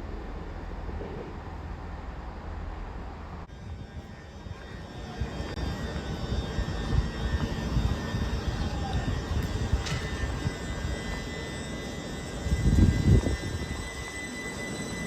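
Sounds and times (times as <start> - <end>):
faint high whine: 0.0 - 15.0
train rumbling: 0.0 - 15.0.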